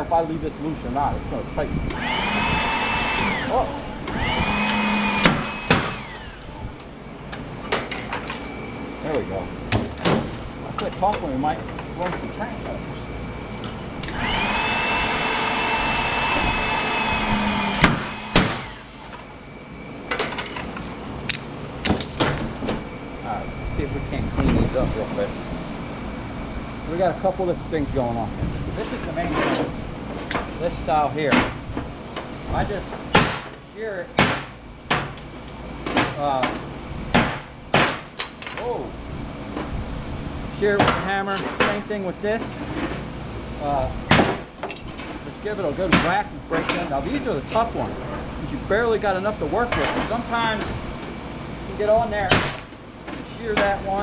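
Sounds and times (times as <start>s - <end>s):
machine motor whining: 1.2s - 7.0s, 13.0s - 19.4s.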